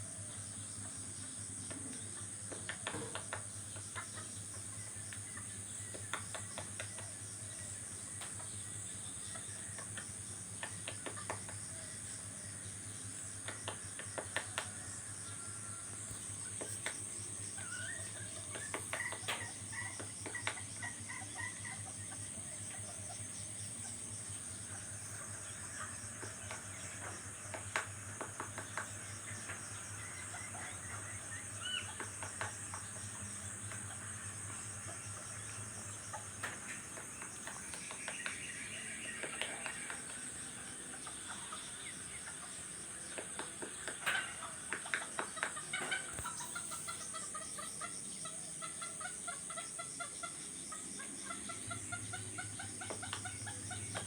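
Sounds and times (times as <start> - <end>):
chickens clucking: 0.6 - 54.0.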